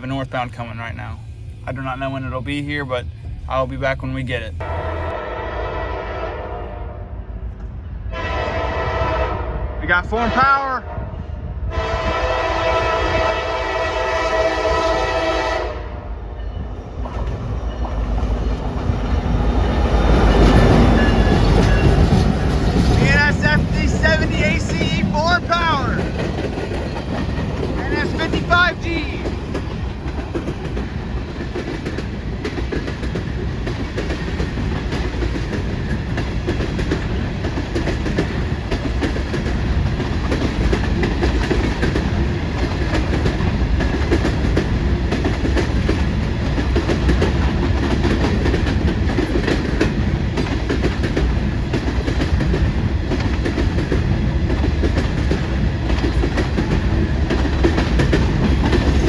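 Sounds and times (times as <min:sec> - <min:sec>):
freight train rolling past: 0:00.0 - 0:59.0
wheels clacking over rail joints: 0:16.4 - 0:59.0.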